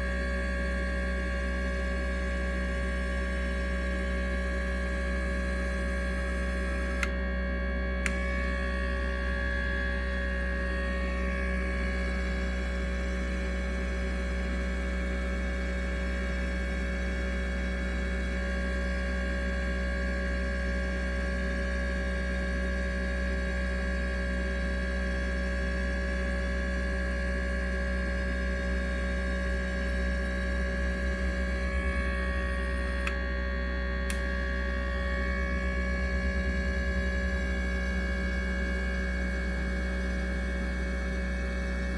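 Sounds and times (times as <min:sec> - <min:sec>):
steady electrical hum: 0:00.0 - 0:15.2, 0:26.4 - 0:41.9.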